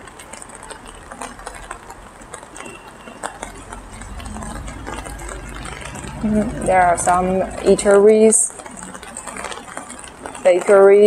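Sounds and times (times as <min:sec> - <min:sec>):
rain pattering on umbrella: 0:00.0 - 0:11.0
low rumble: 0:03.4 - 0:08.3.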